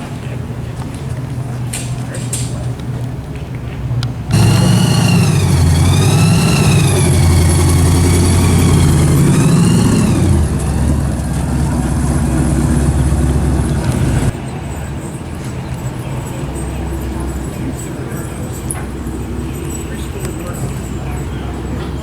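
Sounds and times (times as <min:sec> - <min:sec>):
vehicle engine running: 0:04.3 - 0:14.4.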